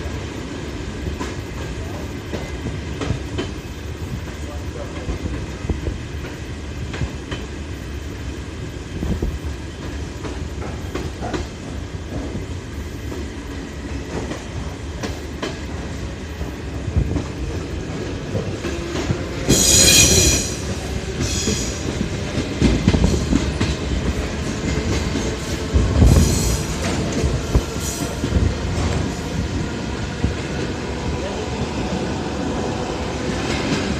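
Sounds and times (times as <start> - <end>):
clickety-clack of rail joints: 0.0 - 33.9
train wheels rumbling on rails: 0.0 - 33.9
wheel screeching on rail: 18.2 - 29.6.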